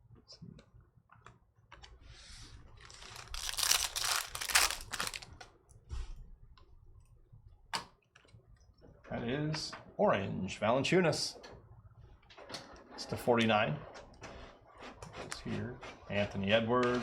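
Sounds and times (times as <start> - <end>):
wrapper torn and crinkled: 2.8 - 5.4.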